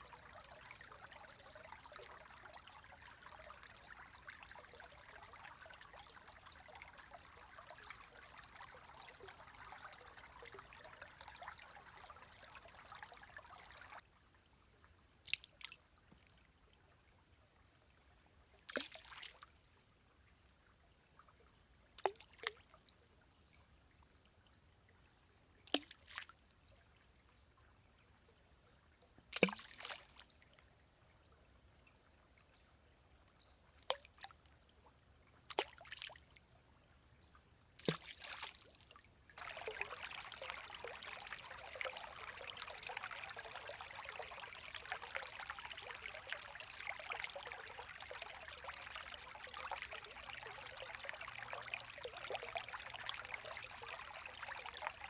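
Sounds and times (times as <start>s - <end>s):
trickle of running water: 0.0s - 55.0s
water drops plopping: 22.0s - 22.6s, 25.6s - 26.2s, 29.3s - 30.0s, 37.8s - 38.4s, 39.4s - 48.0s.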